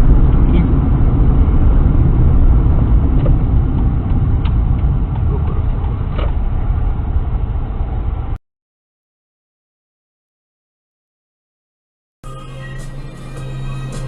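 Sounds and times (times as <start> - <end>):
car engine and road noise: 0.0 - 8.4, 12.2 - 14.0.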